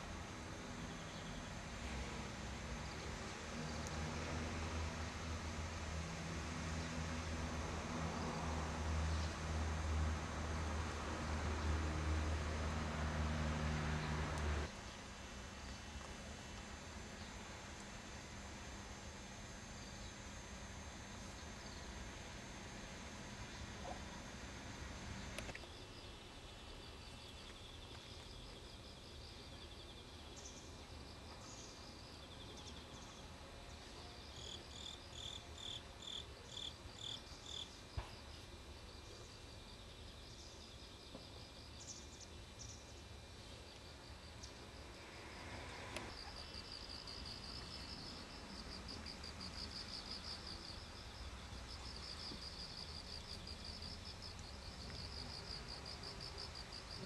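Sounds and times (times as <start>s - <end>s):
insects chirring: 25.0s - 57.0s.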